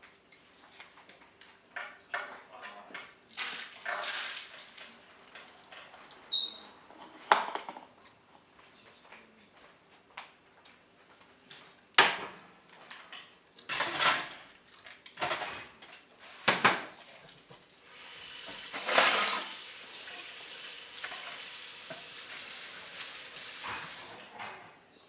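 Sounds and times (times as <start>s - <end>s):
pots and utensils clattering: 12.9s - 17.4s, 18.4s - 19.6s, 21.0s - 24.8s
food sizzling in a hot pan: 17.9s - 24.2s.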